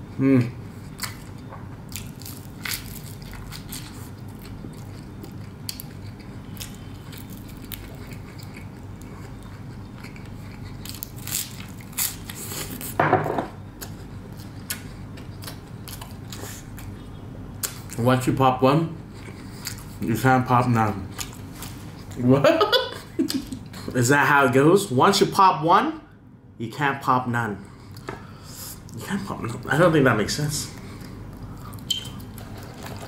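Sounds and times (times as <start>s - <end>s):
person chewing crispy bread: 0.6s - 13.0s, 13.7s - 17.0s, 19.0s - 20.1s, 20.9s - 22.2s.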